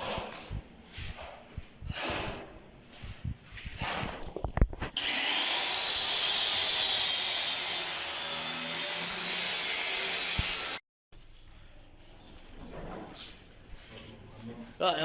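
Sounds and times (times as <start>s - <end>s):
power tool whining: 5.0s - 10.8s.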